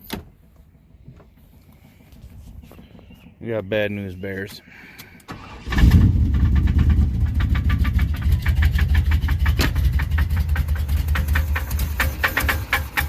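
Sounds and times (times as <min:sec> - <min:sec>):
engine starting: 0:05.2 - 0:08.0, 0:11.1 - 0:13.0
engine idling with rapid knock: 0:05.8 - 0:13.0.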